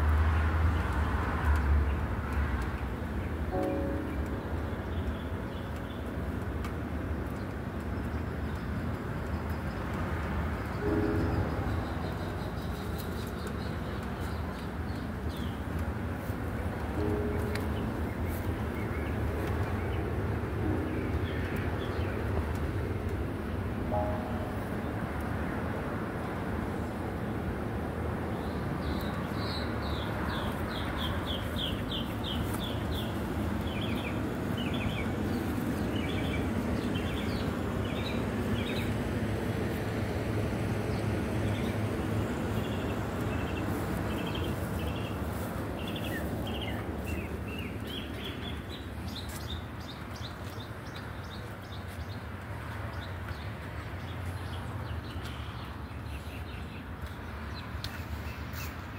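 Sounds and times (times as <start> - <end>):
bird chirping: 10.6 - 15.6.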